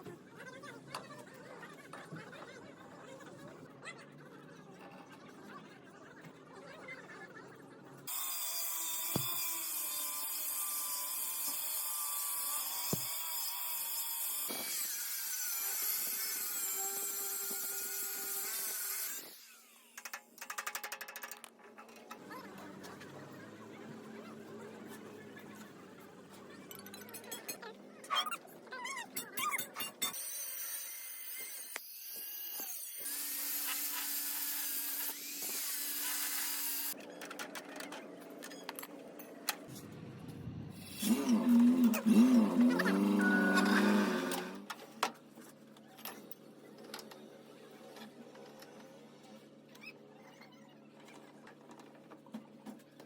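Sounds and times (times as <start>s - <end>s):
power tool whining on metal: 8.1s - 20.0s, 30.0s - 37.0s, 40.8s - 44.7s.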